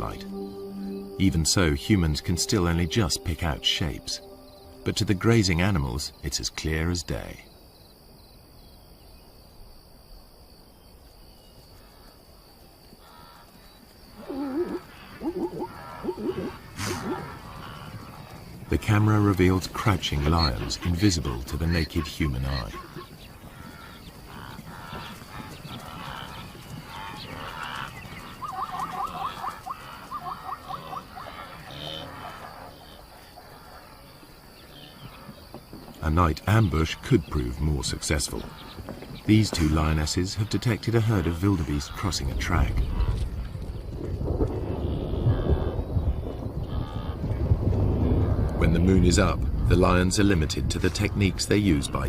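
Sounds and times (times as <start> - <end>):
loud wavering insect call: 0.0 - 6.6, 10.7 - 37.3, 44.3 - 48.4
crickets trilling: 0.0 - 52.0.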